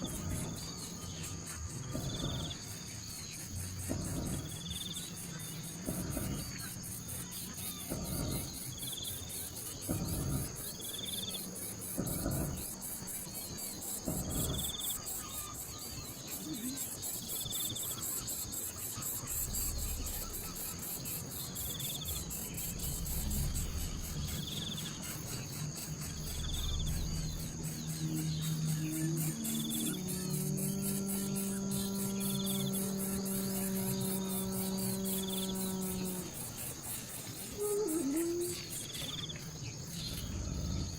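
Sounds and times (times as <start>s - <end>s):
insect trill: 0.0s - 40.9s
short insect call: 0.0s - 40.9s.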